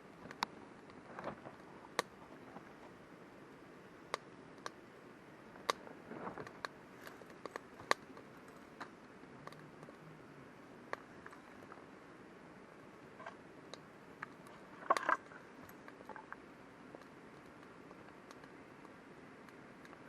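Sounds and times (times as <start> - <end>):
faint fire hiss: 0.0 - 20.0
campfire popping and snapping: 0.2 - 2.8, 4.0 - 4.9, 5.6 - 10.0, 13.0 - 20.0.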